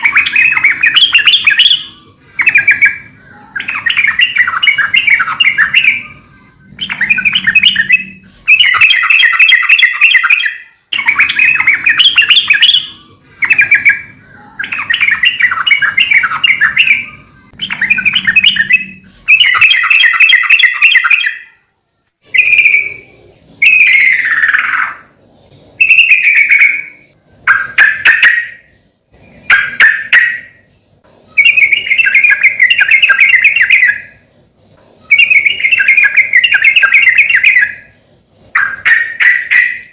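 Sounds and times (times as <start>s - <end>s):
bulbul chattering warbling song: 0.0s - 39.9s.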